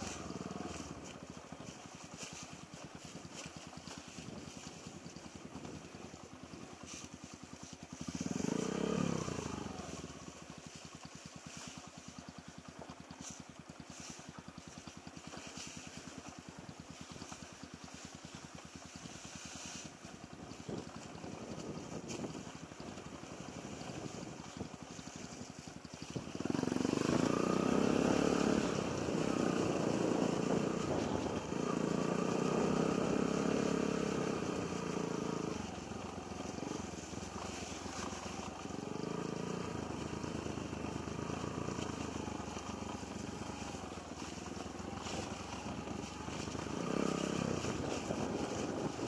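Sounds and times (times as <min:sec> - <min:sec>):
motorcycle engine under throttle: 0:00.0 - 0:49.0.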